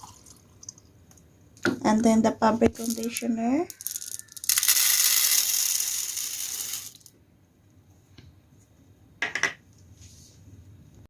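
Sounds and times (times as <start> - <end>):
liquid pouring: 0.0 - 0.9.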